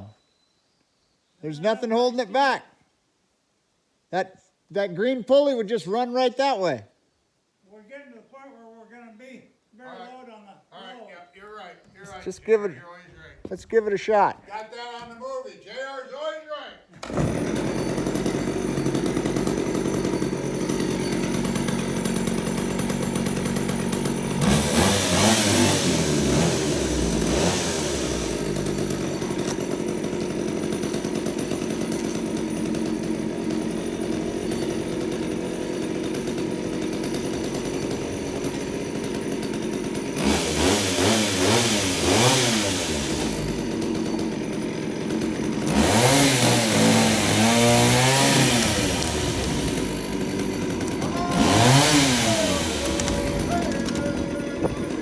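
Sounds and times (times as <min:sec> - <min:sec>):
two-stroke engine revving: 0:17.0 - 0:55.0.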